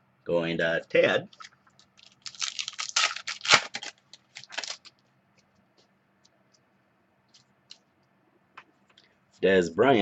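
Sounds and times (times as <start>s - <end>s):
cards and wrapper rustling: 1.9s - 5.0s.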